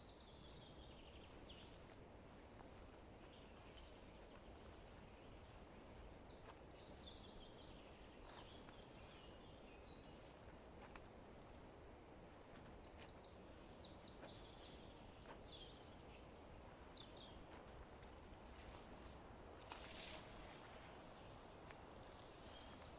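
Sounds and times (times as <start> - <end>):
forest background hiss: 0.0 - 22.9.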